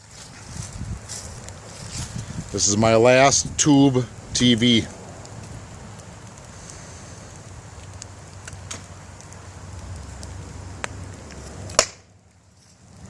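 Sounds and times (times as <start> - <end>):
fire crackling and rushing: 0.0 - 13.0
sharp pops: 11.7 - 12.2.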